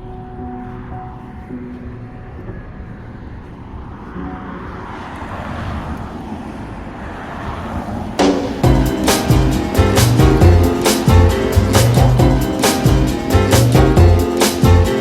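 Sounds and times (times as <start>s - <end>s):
vehicle passing: 0.0s - 15.0s
music: 8.2s - 15.0s.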